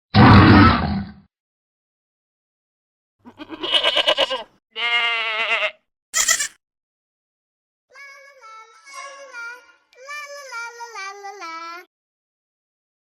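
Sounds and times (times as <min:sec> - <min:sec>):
goats bleating: 0:03.2 - 0:06.5.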